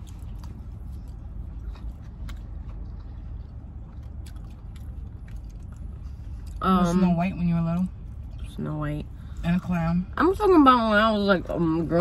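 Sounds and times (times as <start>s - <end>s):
chewing food: 0.0s - 9.8s
steady low hum: 0.0s - 12.0s.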